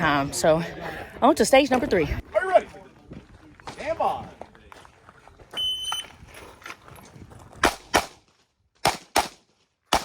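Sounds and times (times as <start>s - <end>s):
pistol shots: 7.6s - 8.2s, 8.8s - 10.0s.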